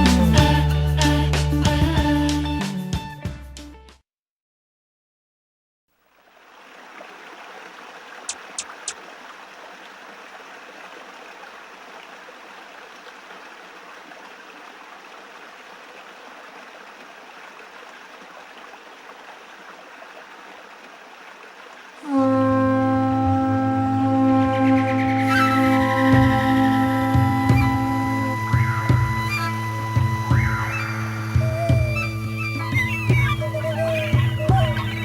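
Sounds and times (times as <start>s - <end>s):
stream water rushing: 6.0s - 35.0s
sharp clicks: 8.3s - 9.0s
music with held tones: 22.1s - 35.0s.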